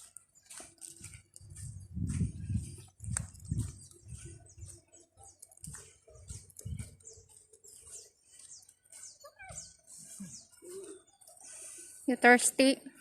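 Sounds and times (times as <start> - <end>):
small birds chirping: 0.0 - 13.0
soft low thumps: 1.0 - 4.9, 5.6 - 7.5.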